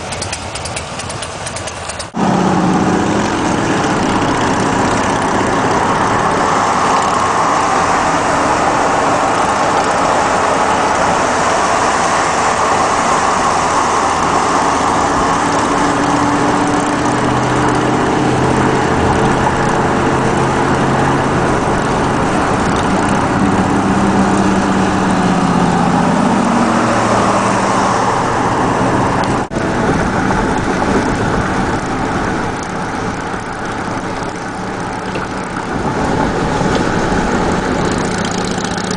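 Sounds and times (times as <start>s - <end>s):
motorcycle engine running: 0.0s - 11.4s, 29.1s - 38.9s
wind rush over microphone: 2.2s - 38.9s.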